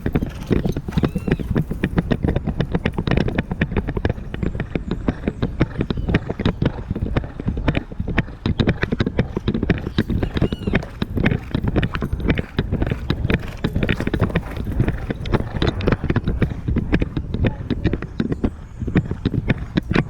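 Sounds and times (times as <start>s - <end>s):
horse hooves clip-clopping: 0.0s - 20.0s
camera rattling in its case: 8.9s - 19.9s.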